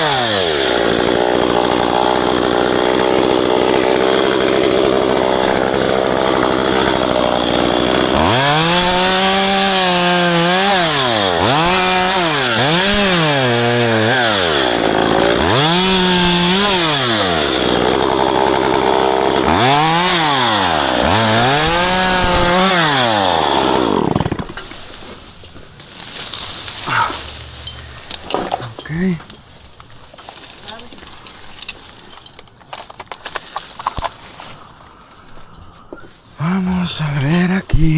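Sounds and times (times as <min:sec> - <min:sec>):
chainsaw revving and cutting: 0:00.0 - 0:25.0, 0:36.4 - 0:37.9.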